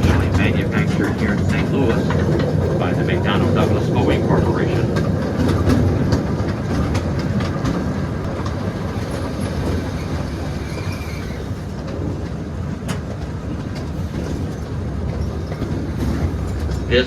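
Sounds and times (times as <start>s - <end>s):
train cars rumbling: 0.0s - 17.0s
wheels clicking over rail joints: 0.0s - 17.0s
faint wheel squeal: 9.3s - 11.7s.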